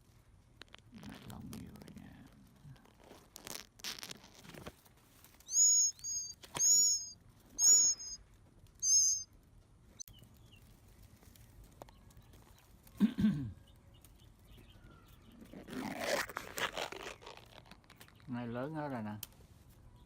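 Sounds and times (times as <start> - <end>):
leaves rustling: 0.0 - 8.5, 10.2 - 13.0, 15.1 - 20.0
songbird chirps: 5.3 - 8.2, 8.8 - 20.0.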